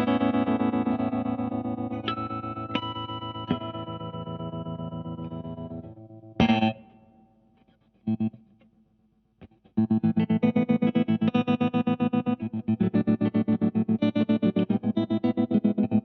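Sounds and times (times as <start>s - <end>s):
electric guitar with tremolo: 0.0s - 7.0s, 9.8s - 16.0s.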